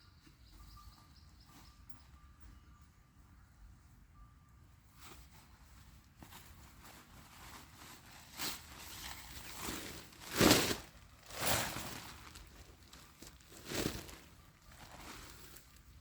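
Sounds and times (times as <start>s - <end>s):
crunching in dry leaves: 5.0s - 16.0s.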